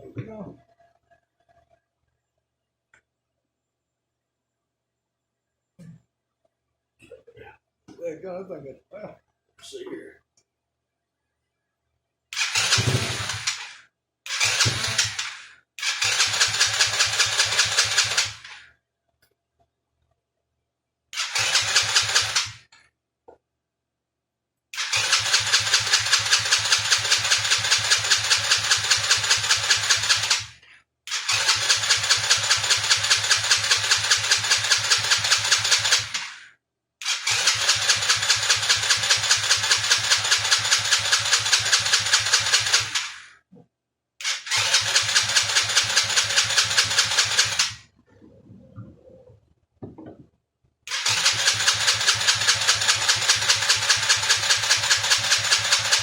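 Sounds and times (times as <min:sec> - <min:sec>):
starter cranking engine: 0:12.4 - 0:18.6, 0:21.2 - 0:22.7, 0:24.8 - 0:36.4, 0:37.0 - 0:43.3, 0:44.2 - 0:47.9, 0:50.9 - 0:56.0.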